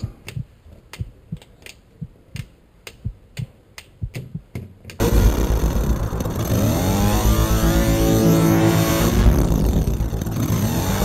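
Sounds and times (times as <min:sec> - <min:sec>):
low pulsing drone with whine: 0:05.0 - 0:11.0.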